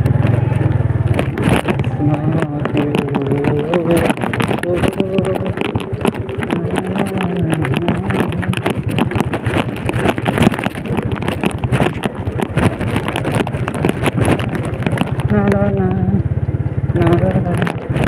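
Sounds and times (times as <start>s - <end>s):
motorcycle engine running: 0.0s - 18.0s
wind buffeting microphone: 0.0s - 18.0s.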